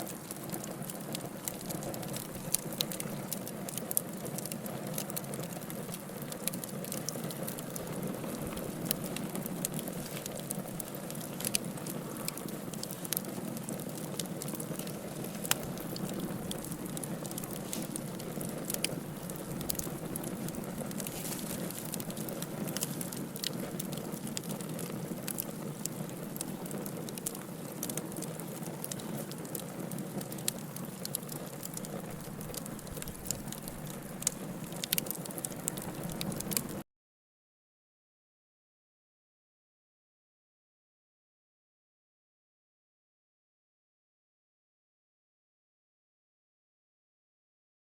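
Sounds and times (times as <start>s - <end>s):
fire crackling in a fireplace: 0.0s - 36.8s.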